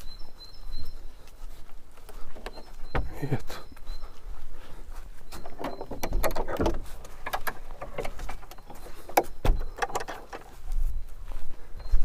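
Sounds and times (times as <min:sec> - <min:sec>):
door being unlocked and opened: 0:05.4 - 0:10.5.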